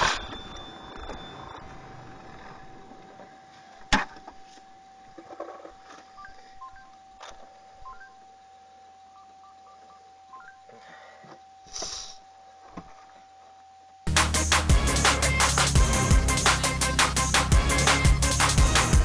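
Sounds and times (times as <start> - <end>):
faint steady tone: 0.0 - 14.0.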